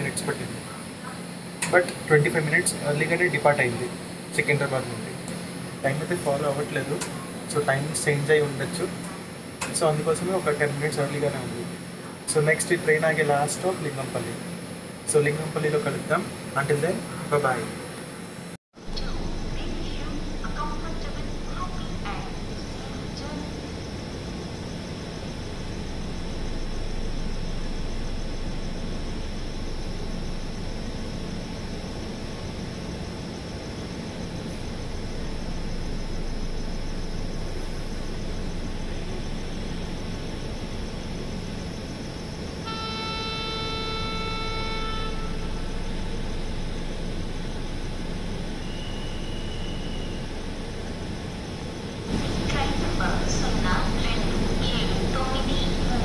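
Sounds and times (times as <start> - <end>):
train horn: 42.6 - 46.0.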